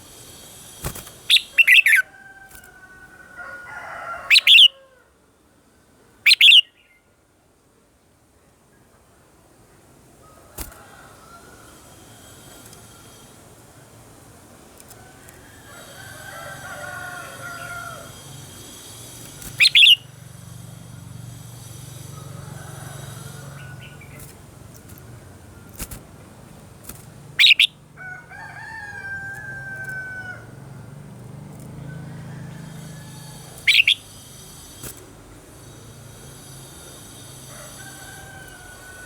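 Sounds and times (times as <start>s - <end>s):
bird singing loud phrases: 1.2s - 2.0s, 4.3s - 4.8s, 6.3s - 7.0s, 19.4s - 20.1s, 27.4s - 27.8s, 33.6s - 34.2s.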